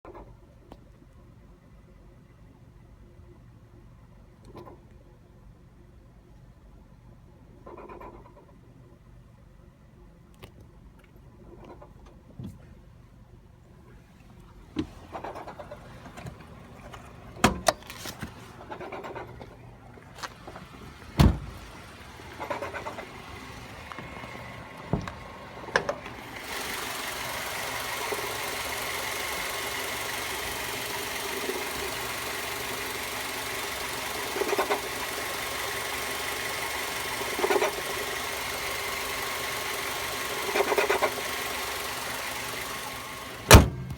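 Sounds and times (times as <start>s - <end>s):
car engine running: 14.6s - 43.9s.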